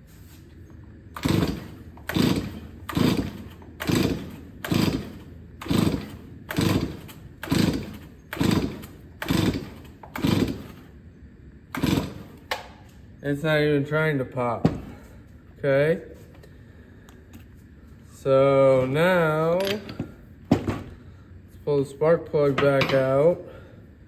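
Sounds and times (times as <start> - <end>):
chainsaw pull-start cranking: 1.2 - 10.9, 11.7 - 12.7.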